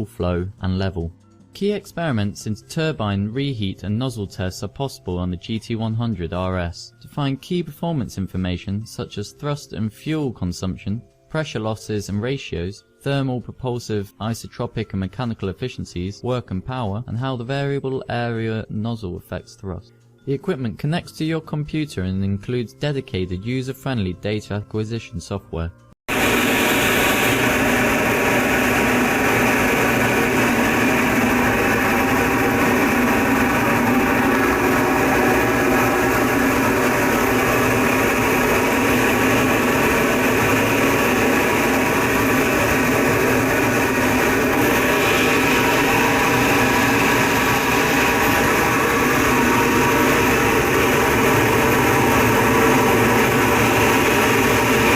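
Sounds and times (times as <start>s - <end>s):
jet engine rushing: 26.1s - 54.9s
steady whining tones: 26.1s - 54.9s.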